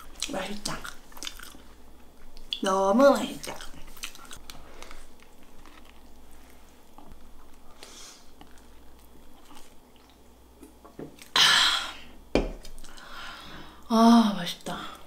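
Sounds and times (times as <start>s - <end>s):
person chewing food: 0.0s - 2.6s, 3.3s - 11.4s, 12.6s - 13.1s.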